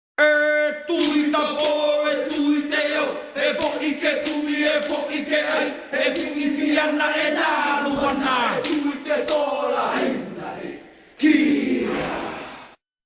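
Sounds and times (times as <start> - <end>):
group chanting and shouting: 0.2 - 12.8.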